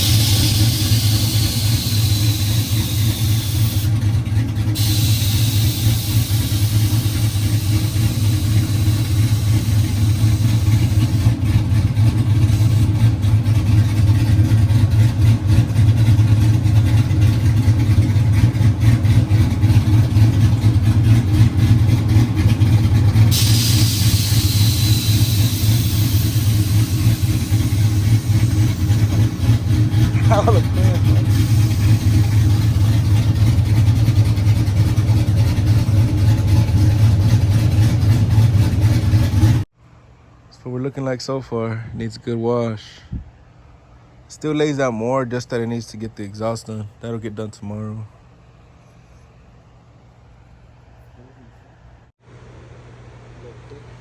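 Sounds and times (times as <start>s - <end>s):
truck engine rumbling: 0.0s - 54.0s.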